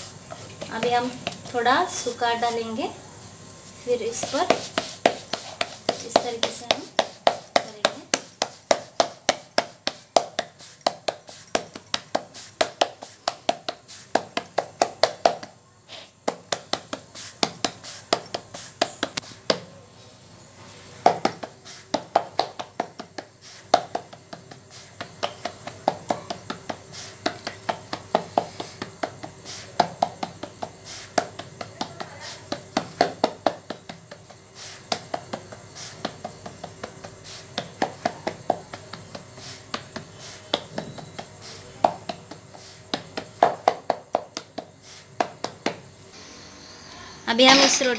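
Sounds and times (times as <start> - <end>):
hands slapping dough on board: 4.1 - 15.6, 16.2 - 19.7, 21.0 - 45.9.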